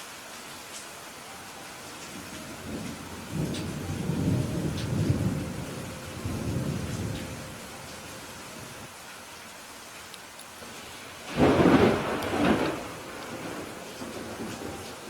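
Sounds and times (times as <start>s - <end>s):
steady rain: 0.0s - 15.0s
thunder rumble: 1.8s - 8.9s, 10.7s - 15.0s.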